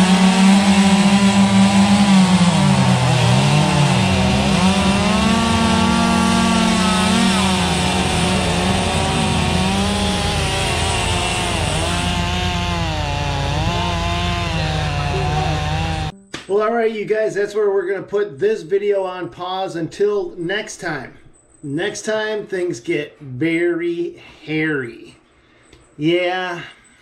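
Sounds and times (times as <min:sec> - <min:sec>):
chainsaw cutting wood: 0:00.0 - 0:16.1.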